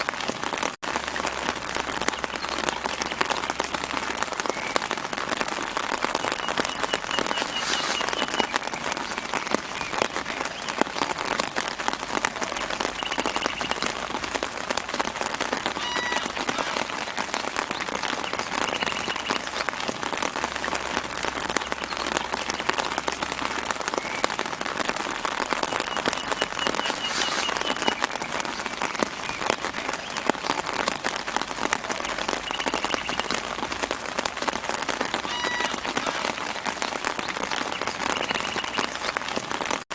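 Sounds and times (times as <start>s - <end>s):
light rain on leaves: 0.0s - 39.9s
faint bird chirps: 6.2s - 10.8s, 12.9s - 13.9s, 18.0s - 19.5s, 25.6s - 28.6s.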